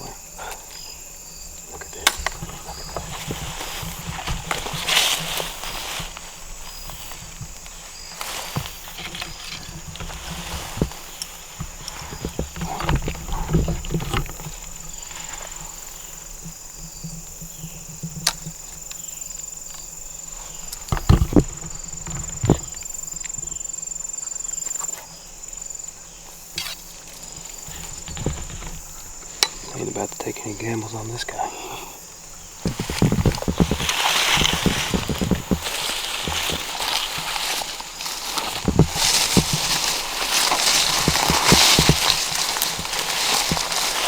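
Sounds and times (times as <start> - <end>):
insects trilling: 0.0 - 44.0
rustling: 0.0 - 44.0
sharp handling knocks: 32.4 - 44.0.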